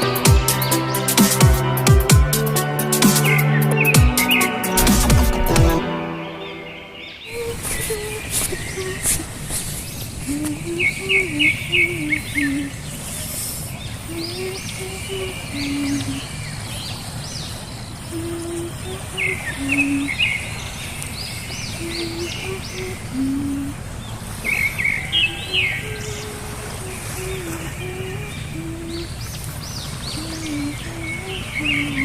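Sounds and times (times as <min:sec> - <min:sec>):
repeating phrase of stepped notes: 0:00.0 - 0:06.7
birds chirping and twittering: 0:02.5 - 0:32.0.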